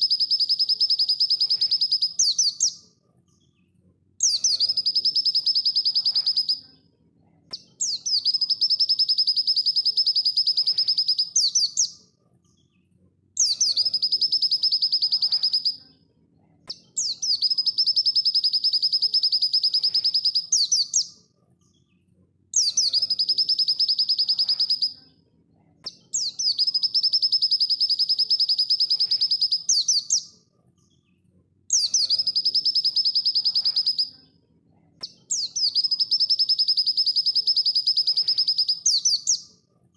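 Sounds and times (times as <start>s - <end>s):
bird singing rapid high trills: 0.0s - 2.8s, 4.2s - 6.6s, 7.8s - 11.9s, 13.4s - 15.8s, 17.0s - 21.1s, 22.6s - 25.0s, 26.2s - 30.3s, 31.7s - 34.1s, 35.3s - 39.4s.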